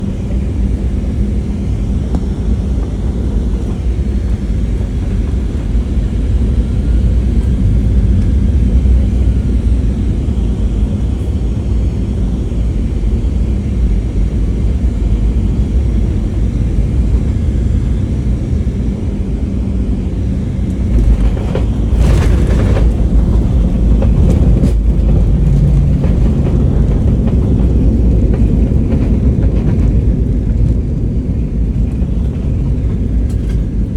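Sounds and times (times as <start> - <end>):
jet engines rumbling: 0.0 - 33.9.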